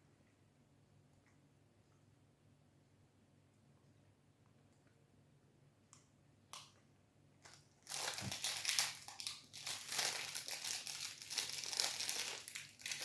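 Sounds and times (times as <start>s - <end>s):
plastic wrapper crinkling: 7.4s - 13.0s.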